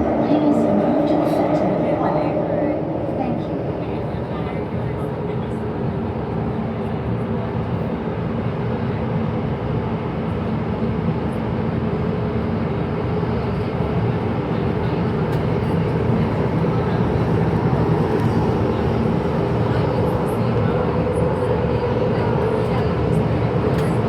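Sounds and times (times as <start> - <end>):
faint hum: 0.0 - 5.6
metro train wheels and motors rumbling: 0.0 - 24.0.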